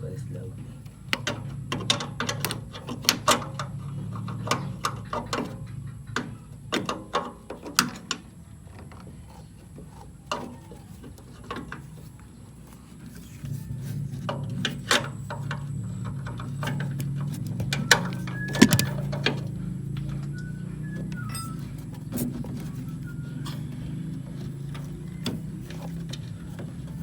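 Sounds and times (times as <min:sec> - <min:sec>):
metal tools clinking: 0:21.2 - 0:22.7.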